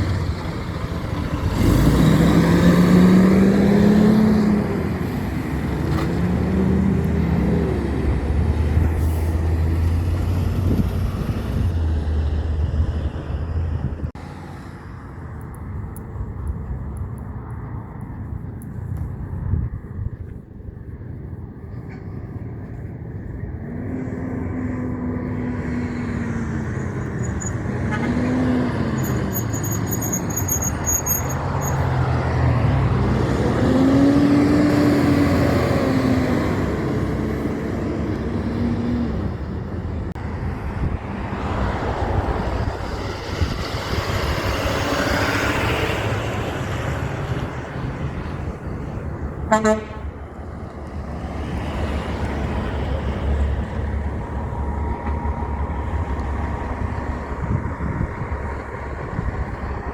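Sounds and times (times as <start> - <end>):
heavy trucks passing: 0.0 - 59.9
truck horn blasts: 49.5 - 50.1.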